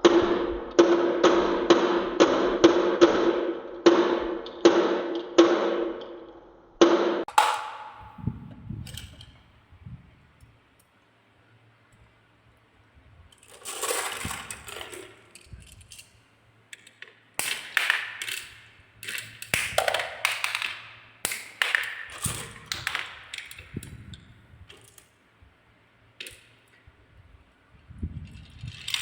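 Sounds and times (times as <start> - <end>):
marbles rolling down a track: 13.4 - 16.0, 16.8 - 23.7, 28.4 - 29.0.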